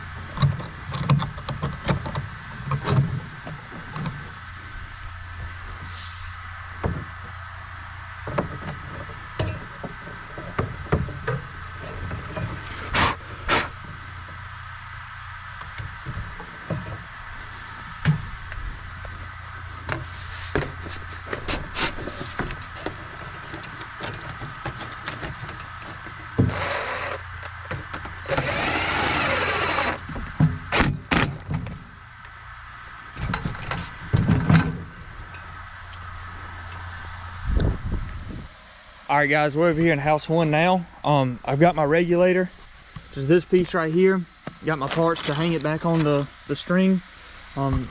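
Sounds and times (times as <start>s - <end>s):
steady low hum: 0.0s - 47.9s
knocks and clatter of hardware: 8.3s - 12.6s, 33.2s - 35.5s
rasping noise: 19.9s - 27.4s.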